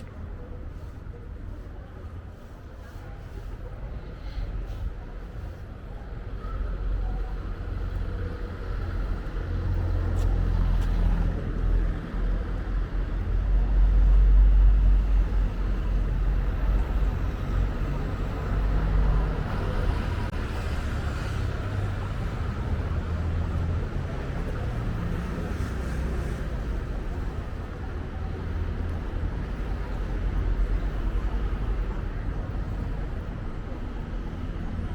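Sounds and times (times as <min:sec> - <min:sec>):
street background hum: 0:00.0 - 0:34.9.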